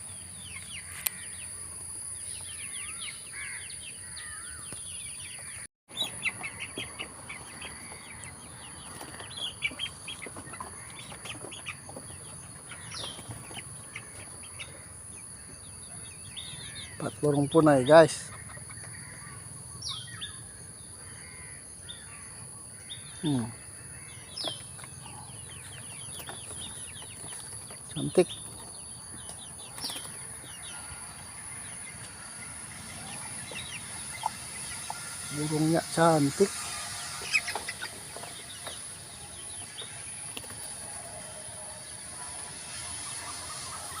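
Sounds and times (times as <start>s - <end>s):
bird chirps and calls: 0.0s - 21.1s
birds chirping: 0.0s - 44.0s
high-pitched insect drone: 30.4s - 44.0s
high-pitched hiss: 32.0s - 44.0s.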